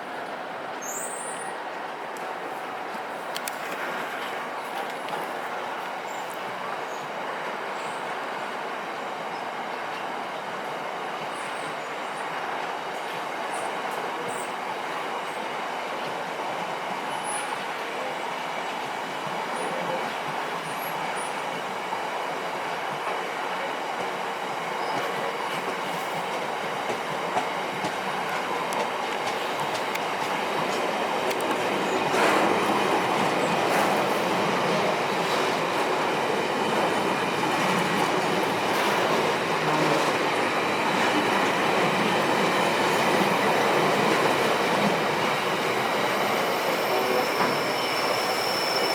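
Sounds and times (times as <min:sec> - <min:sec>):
train wheels on rails: 0:16.9 - 0:48.9.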